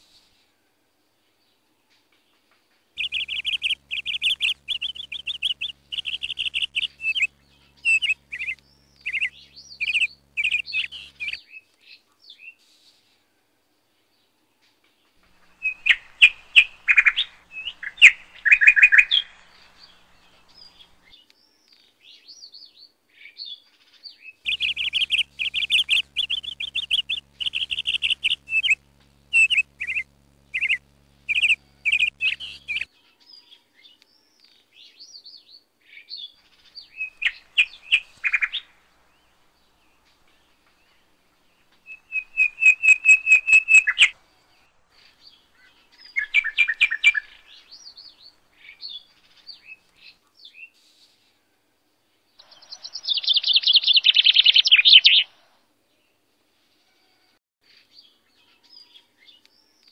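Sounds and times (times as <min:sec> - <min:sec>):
faint low hum: 0:03.0 - 0:11.4, 0:15.2 - 0:21.2, 0:24.5 - 0:32.9, 0:36.3 - 0:50.5
small birds chirping: 0:03.0 - 0:11.5, 0:15.2 - 0:22.6, 0:24.1 - 0:32.9, 0:36.1 - 0:50.8, 0:52.4 - 0:55.3.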